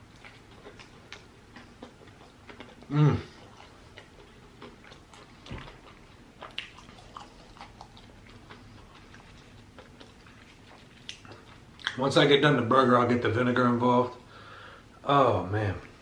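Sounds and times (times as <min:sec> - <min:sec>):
chewing food: 0:00.0 - 0:12.5
person humming: 0:02.9 - 0:03.3.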